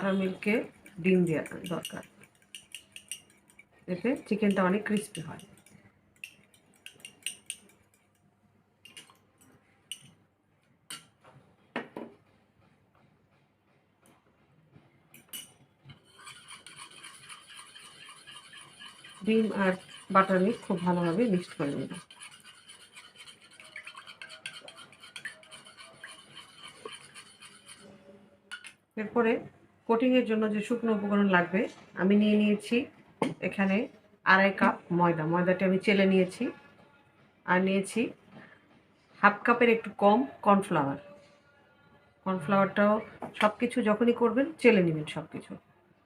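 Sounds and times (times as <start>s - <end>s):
utensil clinking against bowl: 0.0s - 8.2s, 8.8s - 10.2s, 15.2s - 27.8s.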